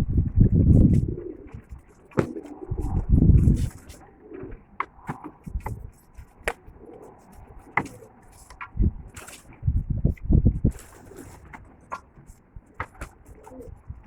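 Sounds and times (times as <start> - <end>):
pigeons cooing: 0.0 - 9.4, 12.8 - 14.0.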